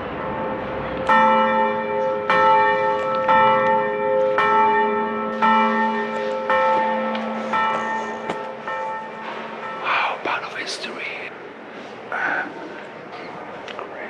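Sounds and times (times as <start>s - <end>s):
church bell tolling: 0.0s - 11.0s.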